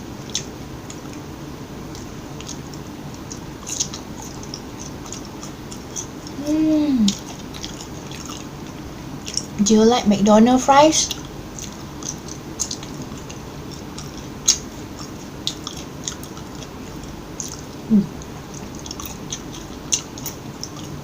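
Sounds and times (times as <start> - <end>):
person chewing food: 0.1 - 9.6, 11.1 - 21.0
wet mouth clicks and crunches: 1.9 - 6.4, 7.1 - 9.6, 11.1 - 21.0
voice humming: 6.3 - 7.2, 17.8 - 18.2.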